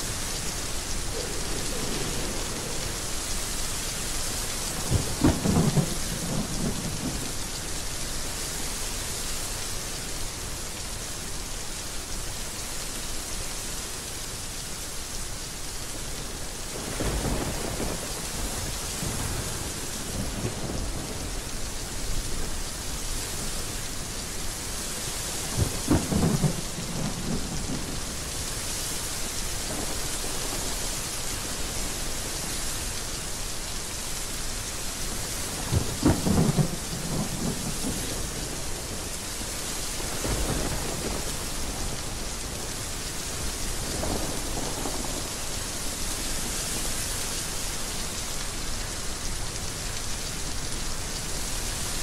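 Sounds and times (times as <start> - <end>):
heavy rain falling: 0.0 - 52.0
thunder rumbling: 0.1 - 7.4, 16.7 - 22.6, 25.4 - 28.5, 35.5 - 46.0.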